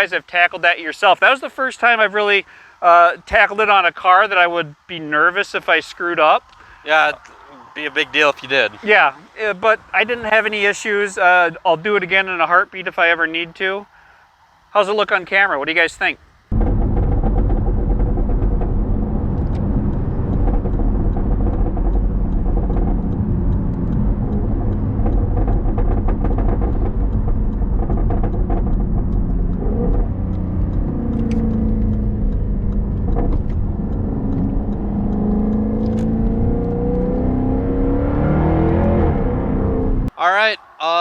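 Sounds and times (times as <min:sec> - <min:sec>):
car engine revving: 0:16.5 - 0:40.1.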